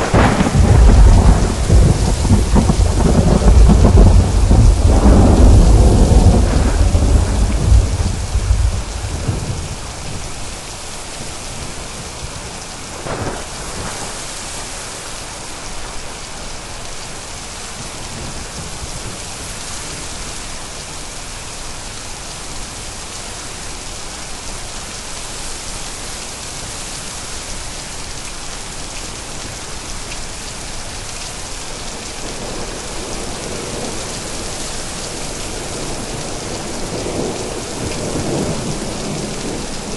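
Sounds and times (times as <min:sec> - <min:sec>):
thunder crack: 0:00.0 - 0:10.3, 0:13.0 - 0:14.4
rolling thunder: 0:00.0 - 0:14.8, 0:32.2 - 0:39.9
steady rain: 0:00.0 - 0:39.9.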